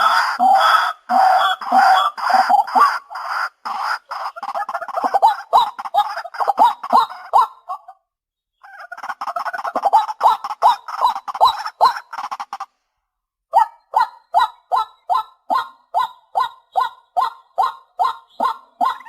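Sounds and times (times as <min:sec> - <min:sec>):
waterhen calling: 0:00.0 - 0:07.9, 0:08.6 - 0:12.7.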